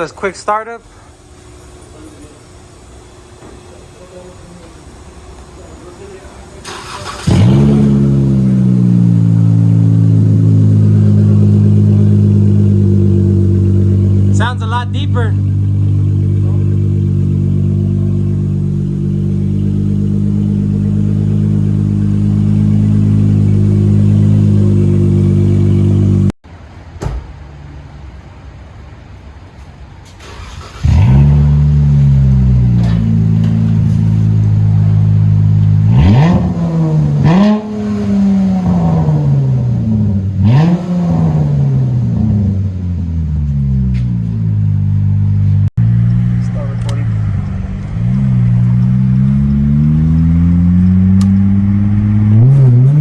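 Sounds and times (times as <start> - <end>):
car engine idling: 0.0 - 26.6, 27.6 - 53.0
engine throttle blips: 0.9 - 26.4, 30.2 - 53.0
engine start-up: 6.0 - 8.4, 30.2 - 32.0.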